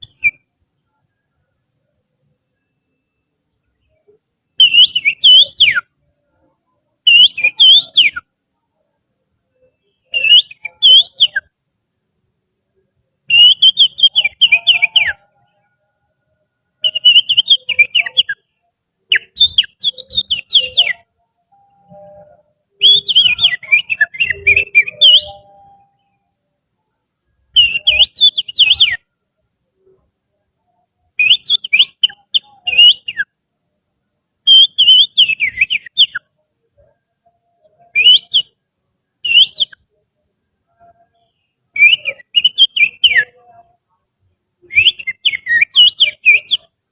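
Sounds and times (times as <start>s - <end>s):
finger whistling birdsong: 4.6s - 5.8s, 7.1s - 8.2s, 9.6s - 11.5s, 13.3s - 15.2s, 16.8s - 18.4s, 19.1s - 26.1s, 27.5s - 29.0s, 31.2s - 33.3s, 34.5s - 36.2s, 37.9s - 38.6s, 39.3s - 39.8s, 41.0s - 43.4s, 44.7s - 46.7s.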